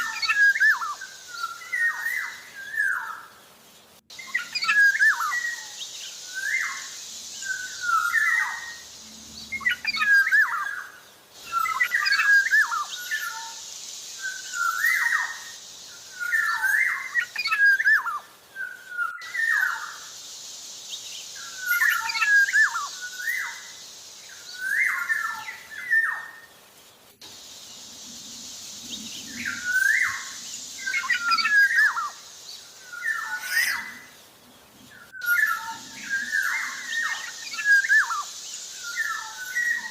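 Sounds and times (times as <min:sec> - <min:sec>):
steady high hiss: 0:00.0 - 0:39.9
oriole whistled song: 0:04.1 - 0:08.8, 0:21.4 - 0:23.7, 0:29.4 - 0:32.2, 0:35.1 - 0:39.9.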